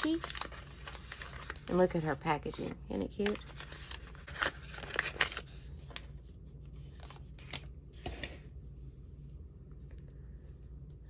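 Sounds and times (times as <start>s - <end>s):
packaging crinkling: 0.0s - 2.0s, 3.1s - 6.2s
low room hum: 0.0s - 11.0s.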